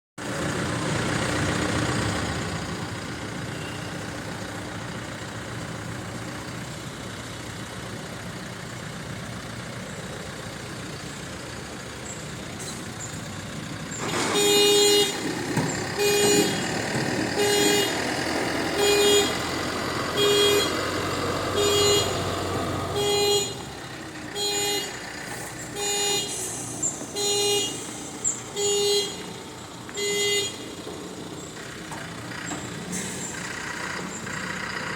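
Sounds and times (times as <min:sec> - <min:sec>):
vehicle engine running: 0:00.2 - 0:34.9
reversing alarm beeping: 0:13.9 - 0:16.8, 0:21.5 - 0:23.7, 0:24.3 - 0:25.0, 0:30.0 - 0:30.8.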